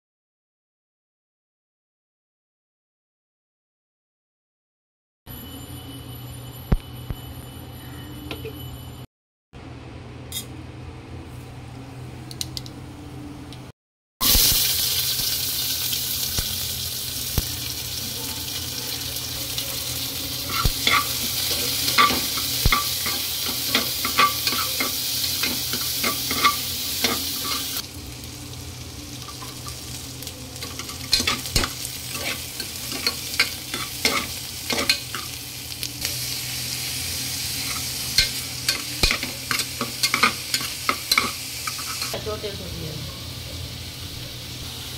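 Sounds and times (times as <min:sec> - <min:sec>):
hot oil sizzling: 0:14.2 - 0:44.9
metal spoon scraping pot: 0:20.4 - 0:27.8, 0:30.6 - 0:35.3.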